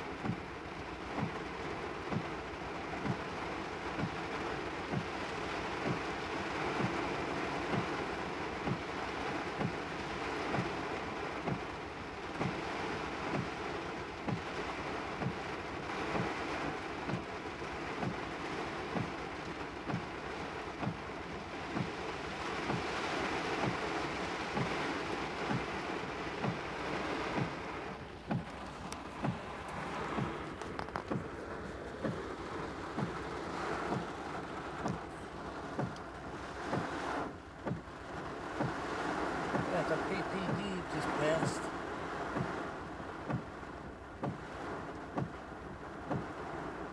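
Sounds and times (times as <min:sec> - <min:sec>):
heavy rain drumming on car roof: 0:00.0 - 0:46.9
low regular thump: 0:00.2 - 0:00.4, 0:20.8 - 0:21.0, 0:24.5 - 0:37.0, 0:37.6 - 0:37.9, 0:43.2 - 0:43.5, 0:44.2 - 0:44.4, 0:45.1 - 0:45.4.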